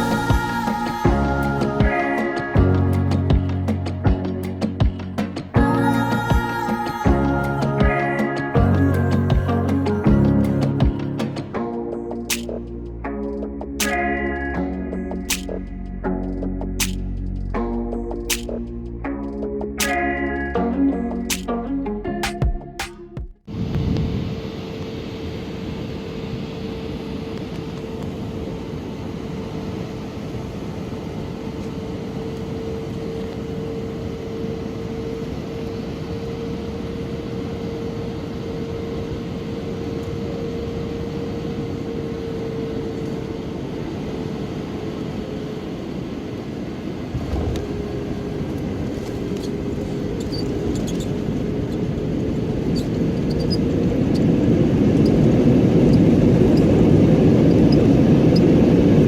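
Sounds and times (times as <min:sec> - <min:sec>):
jet engine drone with whine: 0:23.5 - 0:59.0.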